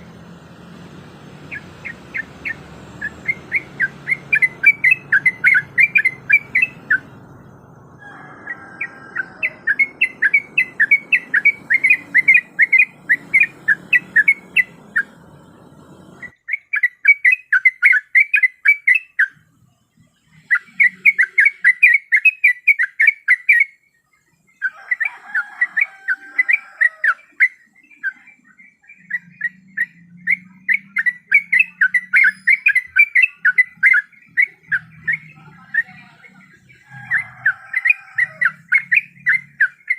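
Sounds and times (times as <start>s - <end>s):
bulbul chirping: 0.0s - 19.4s, 28.9s - 39.9s.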